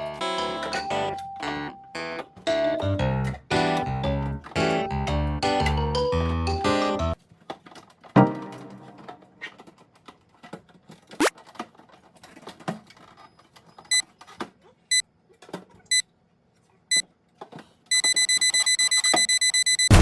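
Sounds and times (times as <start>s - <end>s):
items knocking and clattering: 7.2s - 14.7s
fridge alarm beeping: 17.9s - 20.0s.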